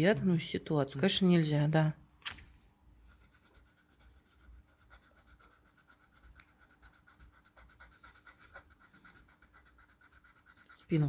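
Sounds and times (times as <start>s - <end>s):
colouring strokes scratching on paper: 2.8s - 11.0s.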